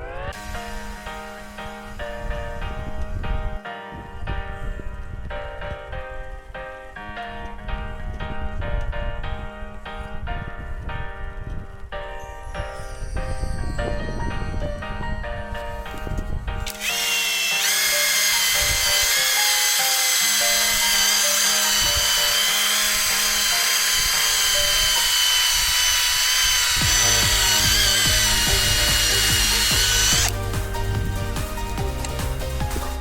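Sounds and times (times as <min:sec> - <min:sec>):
impact wrench spinning wire brush: 0:00.0 - 0:02.5, 0:16.6 - 0:33.0.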